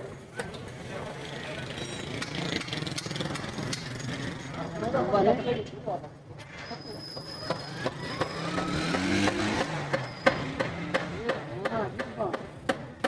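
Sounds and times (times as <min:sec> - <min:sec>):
engine pitch rising and falling: 0:07.2 - 0:11.3
sharp knocks on metal: 0:08.6 - 0:13.0.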